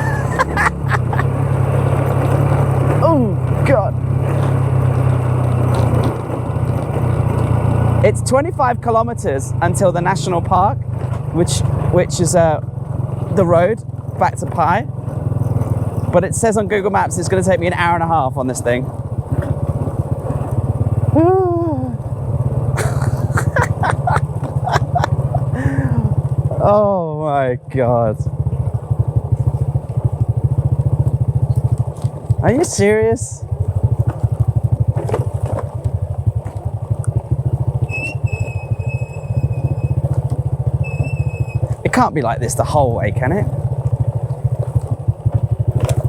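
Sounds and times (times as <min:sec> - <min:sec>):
motorbike engine running: 0:00.0 - 0:46.0
vocal hum: 0:22.8 - 0:26.2.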